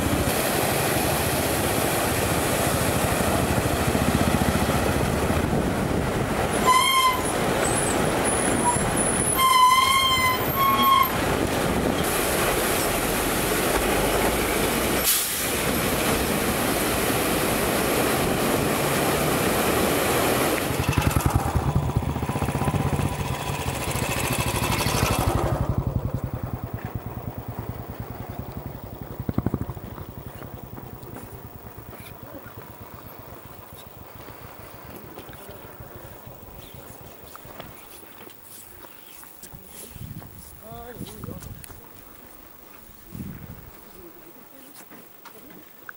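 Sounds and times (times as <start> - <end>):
engine and wind noise: 0.0 - 38.0, 39.5 - 42.2, 42.9 - 44.0
vehicle horn honk: 6.6 - 7.4, 8.6 - 11.2
motorcycle engine pulsing: 20.7 - 34.9.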